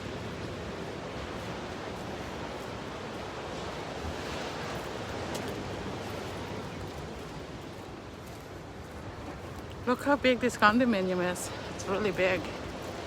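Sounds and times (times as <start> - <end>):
ocean waves washing in: 0.0 - 9.5.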